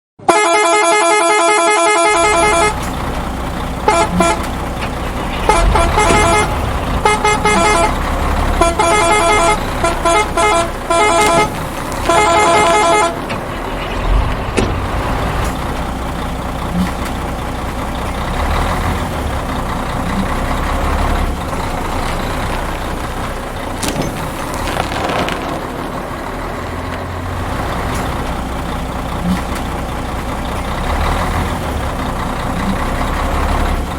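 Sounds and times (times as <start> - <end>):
truck horn blasts: 0.2 - 15.6, 24.6 - 25.7
truck engine idling: 2.1 - 33.9.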